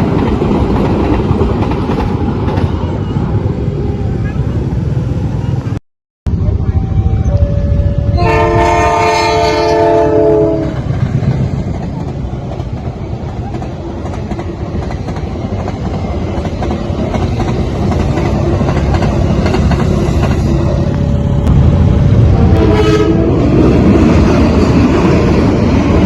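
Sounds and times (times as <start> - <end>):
passing train rumble and wheel clatter: 0.0 - 26.0
train horn blowing: 7.3 - 10.9, 22.3 - 23.5.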